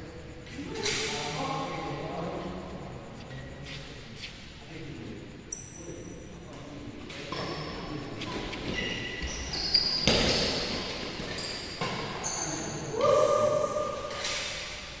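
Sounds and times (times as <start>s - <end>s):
shoes squeaking on court floor: 6.5s - 12.9s, 13.8s - 15.0s.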